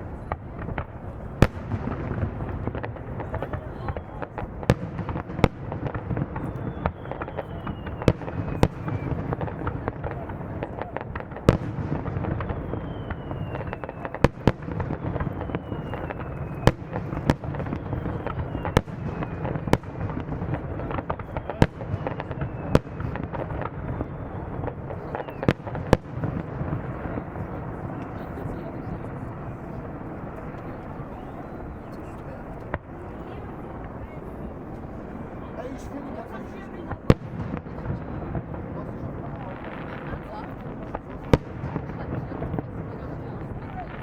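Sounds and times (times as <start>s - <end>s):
crowd murmur: 0.0s - 44.0s
fireworks crackling: 0.0s - 44.0s
falling firework whistles: 3.5s - 9.8s, 11.5s - 26.4s.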